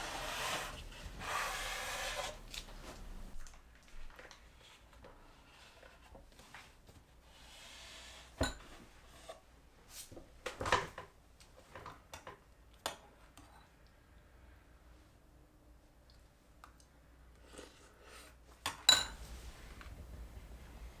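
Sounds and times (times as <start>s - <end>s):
soft rustle: 0.1s - 4.9s, 19.2s - 21.0s.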